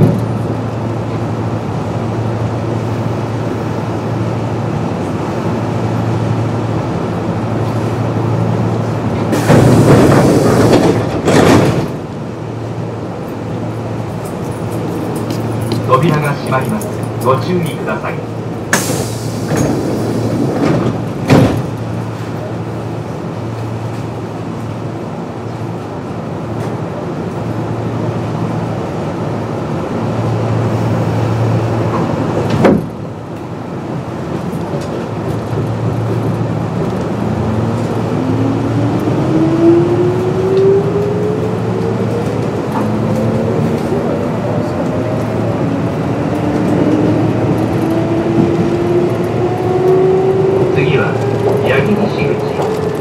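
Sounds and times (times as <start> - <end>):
train doors closing knock: 9.2 - 12.0, 18.7 - 21.9, 31.8 - 33.0.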